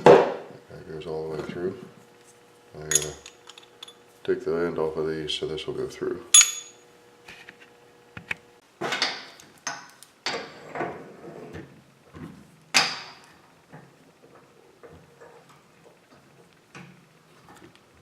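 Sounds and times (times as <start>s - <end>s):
metal bolts and tools clanking: 2.9s - 4.0s, 6.4s - 6.8s.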